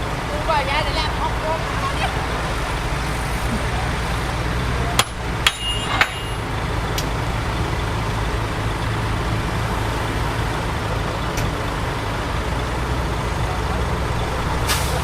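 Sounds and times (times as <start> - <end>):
heavy diesel machinery rumbling: 0.0 - 15.0
sharp metallic clanks: 5.0 - 6.4.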